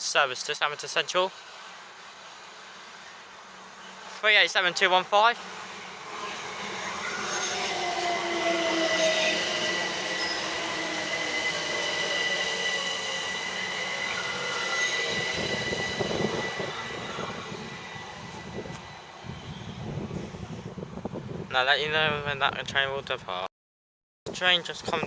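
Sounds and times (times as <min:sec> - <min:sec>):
electric train traction motor whine: 0:05.5 - 0:19.6
wheels and brakes squealing: 0:06.1 - 0:20.4.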